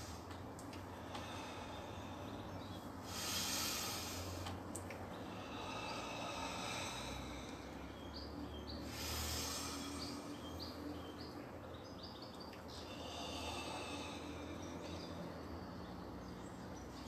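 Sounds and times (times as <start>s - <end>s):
low outdoor rumble: 0.0s - 17.0s
small bird chirping: 5.1s - 17.0s.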